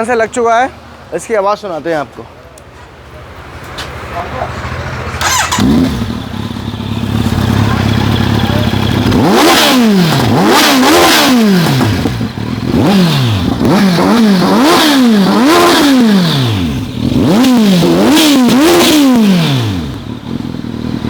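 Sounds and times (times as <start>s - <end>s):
motorcycle engine revving: 4.4s - 21.0s.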